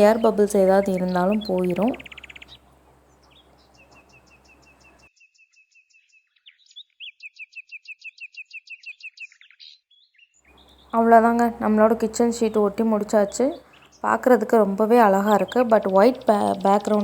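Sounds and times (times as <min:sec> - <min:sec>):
bird chirping high notes: 0:00.0 - 0:05.1, 0:10.5 - 0:17.0.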